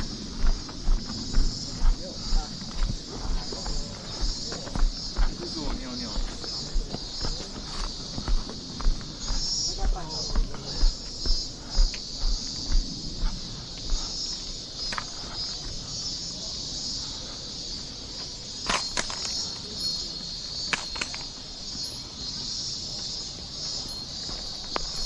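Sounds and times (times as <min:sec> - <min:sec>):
footsteps on trail: 0:00.0 - 0:25.0
insects chorus: 0:00.0 - 0:25.0.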